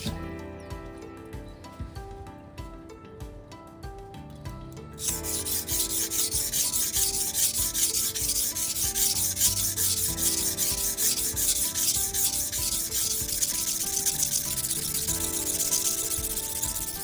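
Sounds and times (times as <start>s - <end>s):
knife scraping on whetstone: 5.0s - 17.0s.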